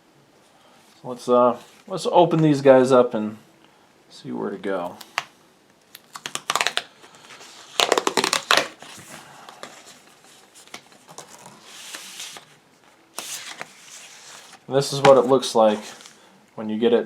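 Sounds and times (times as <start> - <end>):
packaging crinkling: 6.0 - 12.5.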